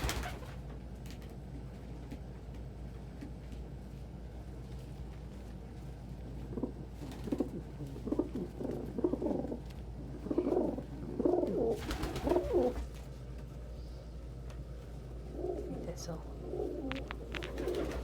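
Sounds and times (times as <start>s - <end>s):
pigeons cooing: 6.3s - 13.0s, 14.9s - 18.0s
rustling: 16.5s - 18.0s.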